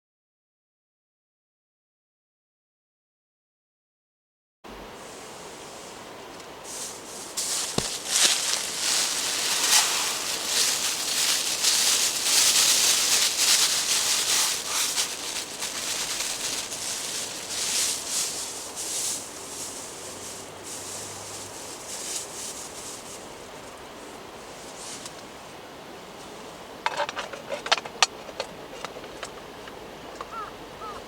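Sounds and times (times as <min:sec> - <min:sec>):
rustling and rubbing: 0:06.6 - 0:23.8.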